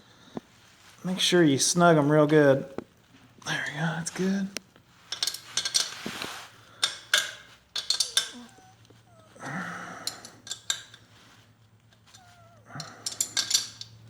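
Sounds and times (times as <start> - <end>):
hand tools clicking and knocking: 5.1 - 6.2, 6.8 - 11.1, 11.8 - 14.0.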